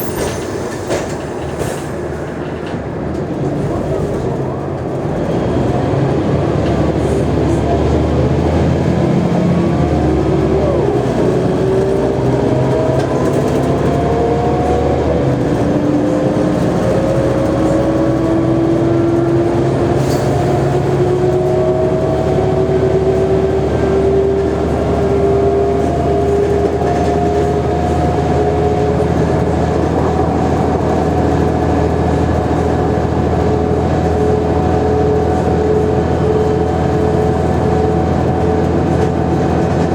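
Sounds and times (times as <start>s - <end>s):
bus engine drone: 0.0s - 39.9s
drivetrain whine: 20.6s - 39.9s.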